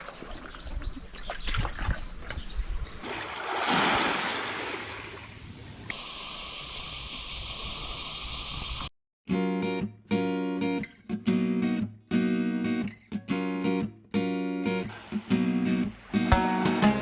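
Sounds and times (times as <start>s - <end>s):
wave rushing in: 3.0s - 5.9s
water drips and splashes: 3.0s - 6.2s
steady rushing hiss of sea: 3.0s - 8.9s, 14.9s - 17.0s.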